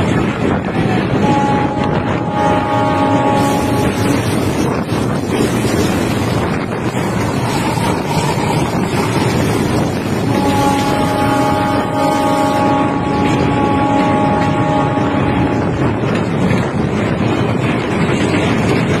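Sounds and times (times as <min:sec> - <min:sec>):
train running noise: 0:00.0 - 0:19.0
wind buffeting microphone: 0:00.0 - 0:19.0
long train horn: 0:00.8 - 0:04.5, 0:07.0 - 0:09.4, 0:10.1 - 0:16.0.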